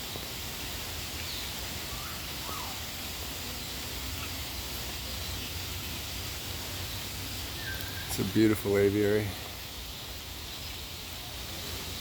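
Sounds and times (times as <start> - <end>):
rain hissing: 0.0 - 12.0
faint bird calls: 1.2 - 3.0, 7.5 - 8.4.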